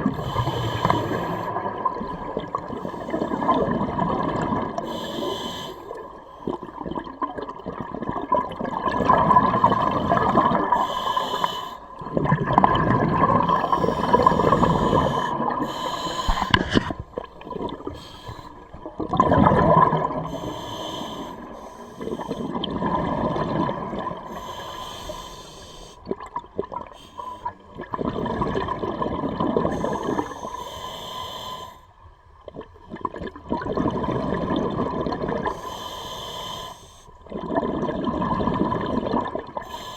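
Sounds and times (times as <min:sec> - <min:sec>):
gurgling exhaled bubbles: 0:00.0 - 0:24.6, 0:26.0 - 0:30.5, 0:32.4 - 0:35.7, 0:37.2 - 0:39.9
regulator hissing inhale: 0:00.1 - 0:01.6, 0:04.8 - 0:06.6, 0:10.8 - 0:12.0, 0:13.5 - 0:17.0, 0:17.9 - 0:18.7, 0:20.3 - 0:22.6, 0:24.3 - 0:26.0, 0:27.0 - 0:27.5, 0:29.7 - 0:31.9, 0:35.5 - 0:37.2, 0:39.6 - 0:39.9.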